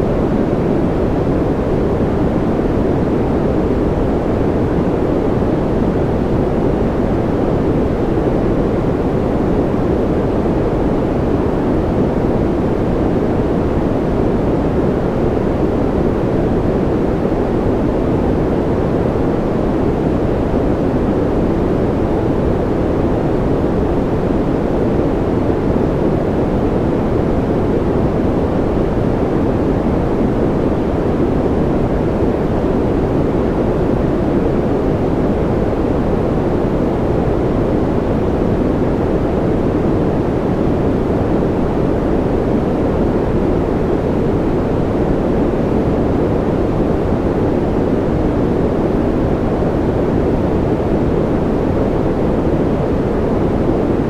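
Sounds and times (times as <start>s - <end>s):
deep white noise rush: 0.0s - 54.0s.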